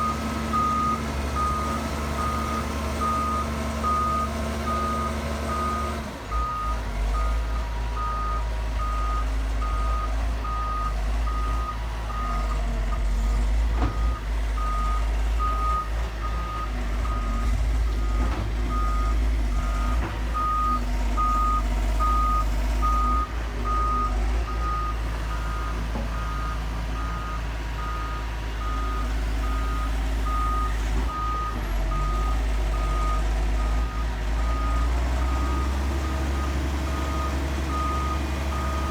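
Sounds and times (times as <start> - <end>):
heavy machine engine rumbling: 0.0 - 38.9.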